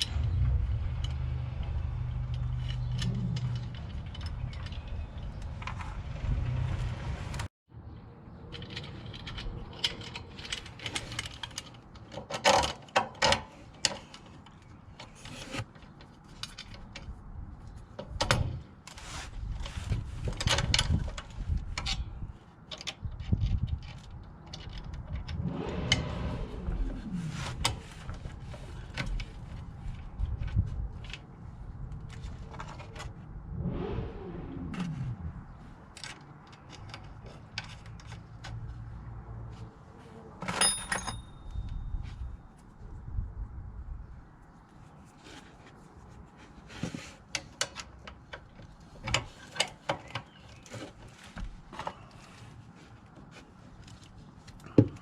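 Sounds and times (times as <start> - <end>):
tools and parts handled: 2.1 - 6.0, 8.4 - 25.5, 35.4 - 42.7
short falling whirrs: 33.4 - 35.6.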